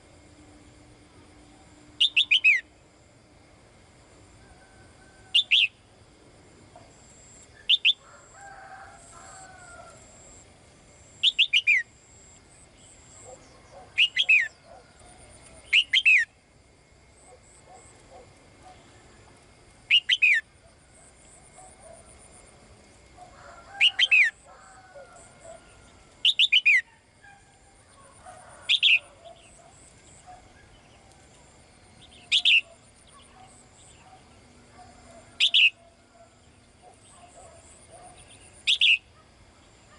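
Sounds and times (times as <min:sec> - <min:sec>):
songbird chirping: 0:02.0 - 0:02.7, 0:07.2 - 0:08.0, 0:11.1 - 0:16.4, 0:23.2 - 0:39.9.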